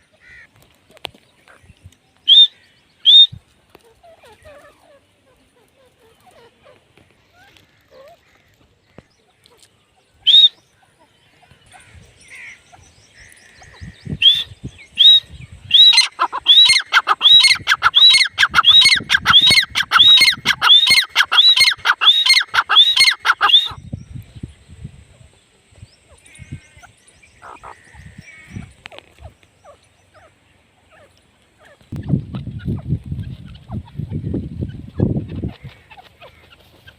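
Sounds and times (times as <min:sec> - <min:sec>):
francolin ringing calls: 0:11.7 - 0:23.9.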